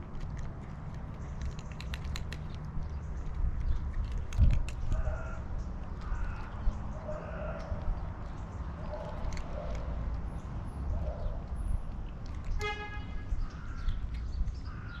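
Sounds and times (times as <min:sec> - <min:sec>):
low rumble of traffic: 0:00.0 - 0:15.0
car horn toot: 0:12.6 - 0:13.2.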